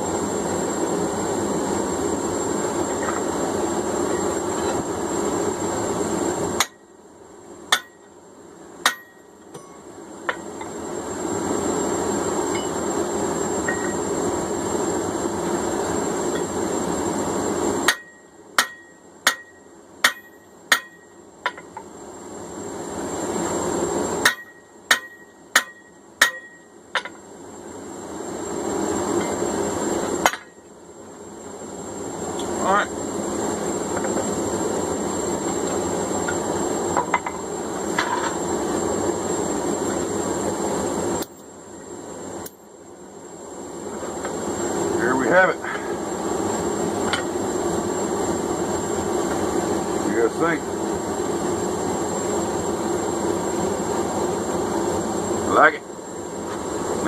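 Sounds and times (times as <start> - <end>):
hammer ringing on steel drift: 8.8 - 9.9, 17.9 - 21.2, 24.2 - 26.7.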